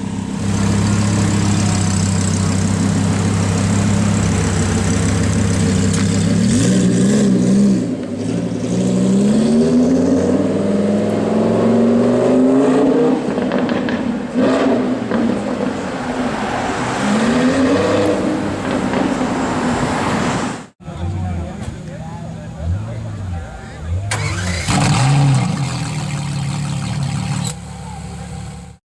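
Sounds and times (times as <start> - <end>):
sports car engine revving: 0.0 - 15.8, 24.1 - 28.8.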